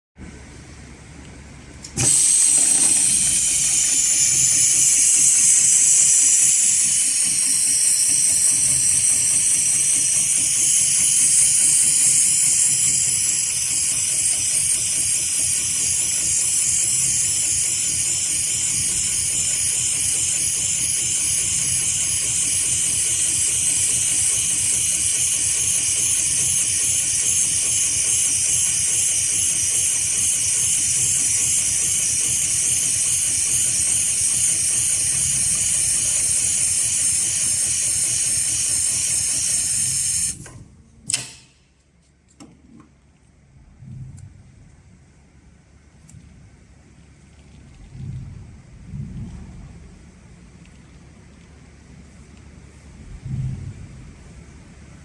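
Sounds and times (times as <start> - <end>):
sewing machine hissing: 1.8 - 40.6
fast mechanical chatter: 2.0 - 40.4.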